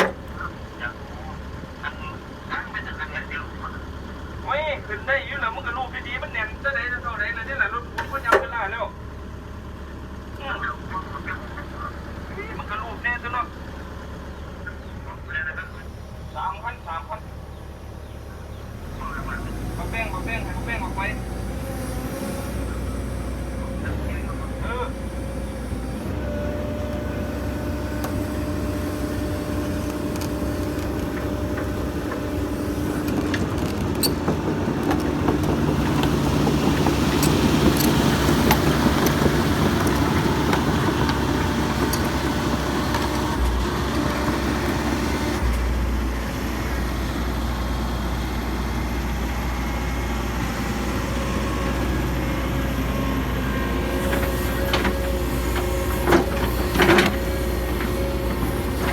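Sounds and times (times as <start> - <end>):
diesel machinery engine running: 0.0 - 58.9.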